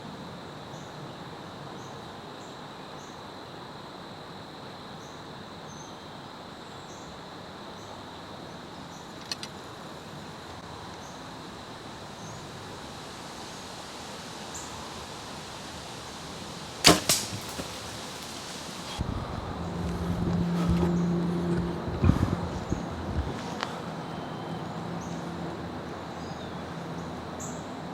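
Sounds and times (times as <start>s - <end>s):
small click: 9.2s - 9.6s
arrow striking thuds: 16.8s - 19.0s
bow release snap: 16.8s - 19.0s
wind rushing: 17.6s - 23.5s.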